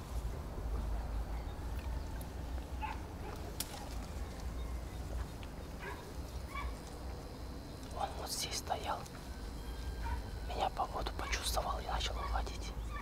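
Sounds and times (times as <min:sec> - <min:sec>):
steady low rumble: 0:00.0 - 0:13.0
faint bird calls: 0:00.6 - 0:13.0.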